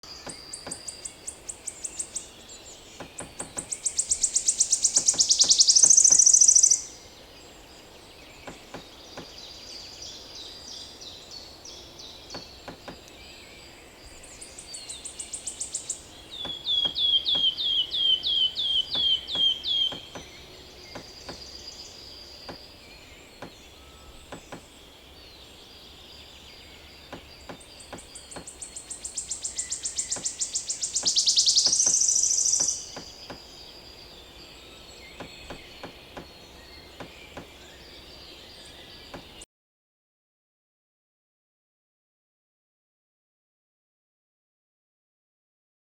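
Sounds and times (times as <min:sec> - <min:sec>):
songbirds singing: 0:00.0 - 0:39.5
woodpecker pecking at wood: 0:00.2 - 0:01.1, 0:03.0 - 0:06.7, 0:18.7 - 0:21.5, 0:24.2 - 0:24.7, 0:27.0 - 0:33.5.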